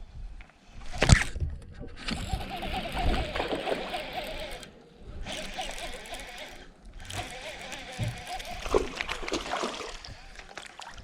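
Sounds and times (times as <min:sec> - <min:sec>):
water splashing: 0:07.3 - 0:11.0.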